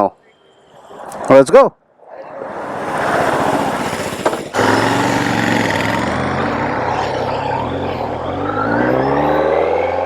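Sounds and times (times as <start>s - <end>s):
motorcycle engine running: 4.5s - 8.5s.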